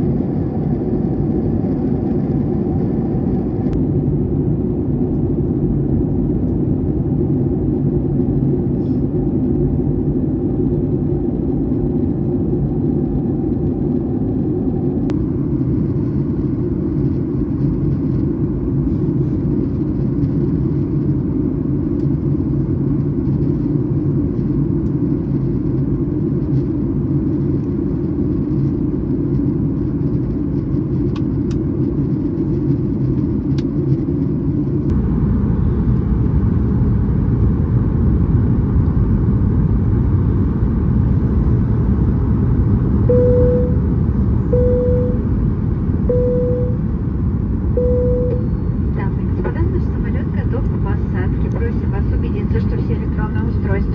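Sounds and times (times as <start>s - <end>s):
airplane cabin rumble: 0.0s - 53.9s
faint hum: 34.8s - 53.9s.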